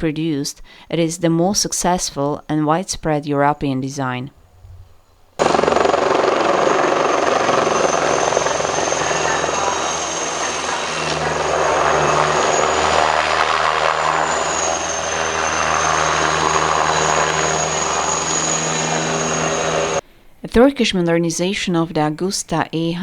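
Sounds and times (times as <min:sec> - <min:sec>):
helicopter rotor and engine: 0:05.4 - 0:20.0
high turbine whine: 0:05.4 - 0:20.0.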